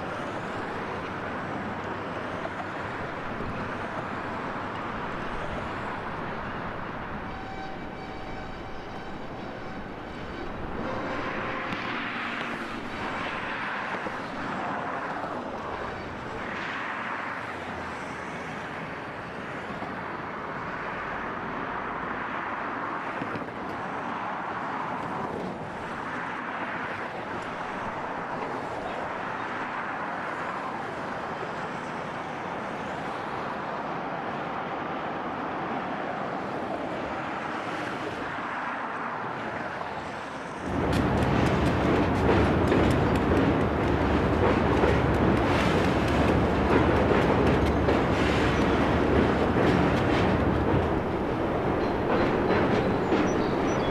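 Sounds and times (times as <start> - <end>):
traffic: 0.0 - 53.9
distant machinery: 39.4 - 53.9.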